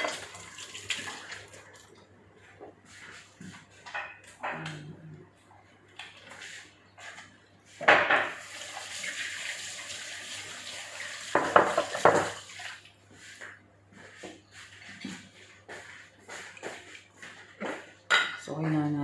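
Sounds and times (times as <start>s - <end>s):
kitchenware clattering: 0.0s - 0.5s, 3.8s - 4.8s, 7.8s - 8.4s, 11.3s - 12.4s, 17.6s - 19.0s
tap running into a sink: 11.2s - 12.4s.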